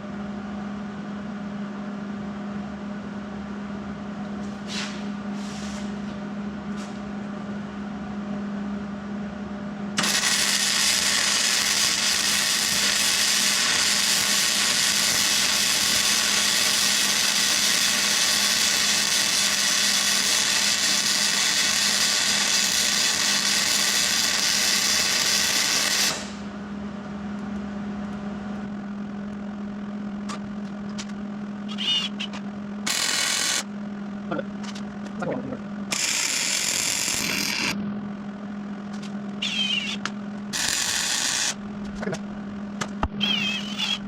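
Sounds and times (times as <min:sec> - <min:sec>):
power tool running on metal: 0:10.0 - 0:26.4, 0:32.8 - 0:33.7, 0:35.9 - 0:37.8, 0:39.4 - 0:41.6.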